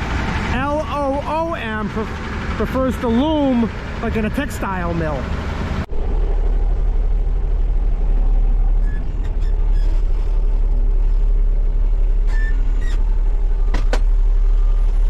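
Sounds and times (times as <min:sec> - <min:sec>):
diesel truck engine rumbling: 0:00.0 - 0:15.0.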